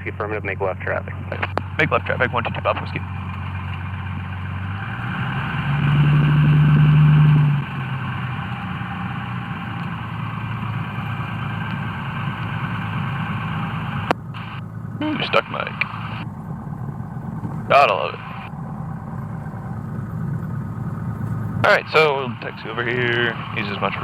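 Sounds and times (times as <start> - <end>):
aircraft engine running: 0.0 - 24.0
radio hiss: 14.3 - 16.3, 17.7 - 18.5, 21.7 - 24.0
radio click: 15.8 - 16.2.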